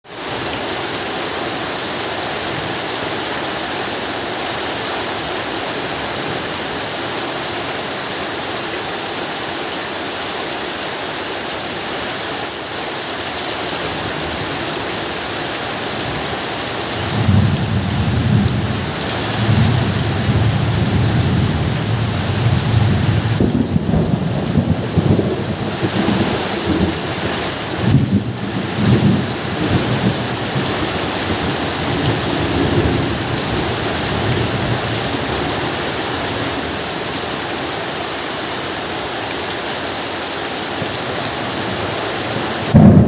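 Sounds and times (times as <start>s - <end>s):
heavy rain falling: 0.0s - 43.0s
low rumbling thunder: 17.0s - 27.0s, 27.8s - 34.9s, 42.6s - 43.0s.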